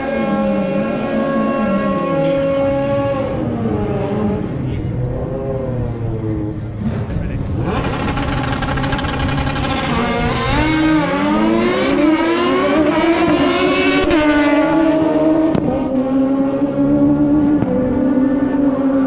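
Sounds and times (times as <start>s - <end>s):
drag racing engine accelerating: 0.0s - 19.0s.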